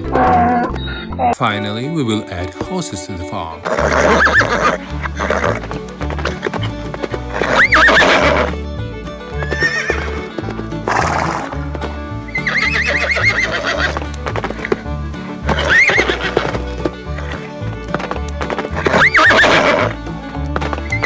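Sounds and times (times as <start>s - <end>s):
background music with bass line: 0.0s - 21.0s
horse whinnying: 3.6s - 8.6s, 9.3s - 21.0s.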